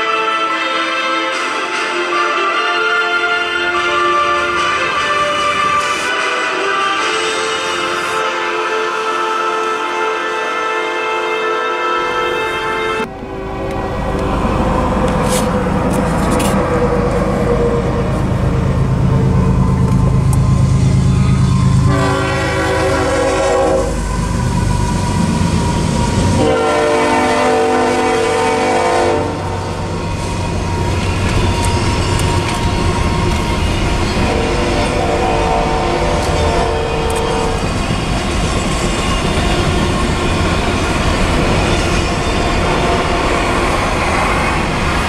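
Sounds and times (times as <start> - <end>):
train horn: 0.0 - 18.2, 19.1 - 37.9
diesel locomotive engine rumble: 12.0 - 45.0
freight cars rolling on rails: 13.0 - 45.0.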